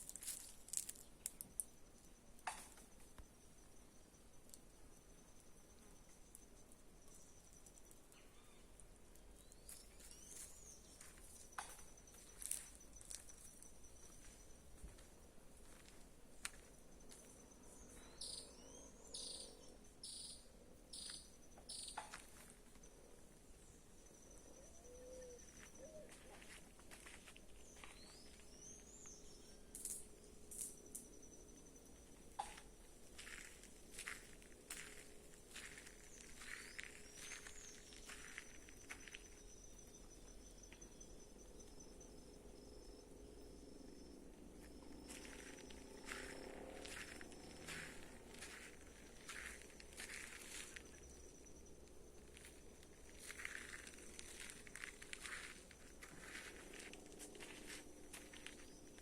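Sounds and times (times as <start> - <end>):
insects whining: 9.5 - 59.0
buzzy insect chirps: 19.2 - 22.0.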